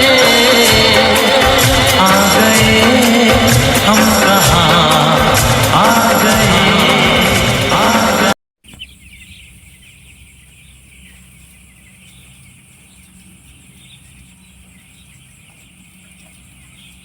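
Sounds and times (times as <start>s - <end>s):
chickens peeping and calling: 7.7s - 17.0s
steady low hum: 8.9s - 17.0s.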